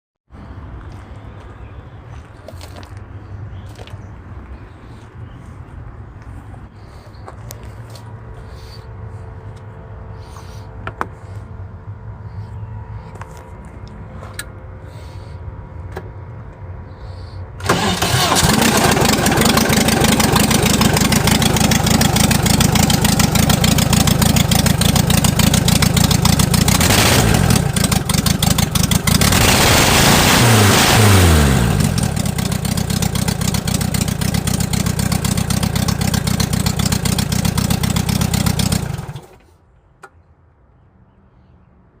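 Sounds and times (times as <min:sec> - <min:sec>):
engine starting and revving: 0:17.6 - 0:22.4, 0:26.4 - 0:33.3, 0:37.8 - 0:39.4.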